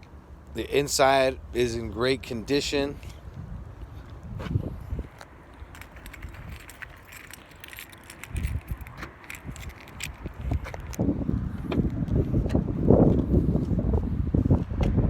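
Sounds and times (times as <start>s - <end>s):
light clicks and rattles: 5.1s - 11.0s.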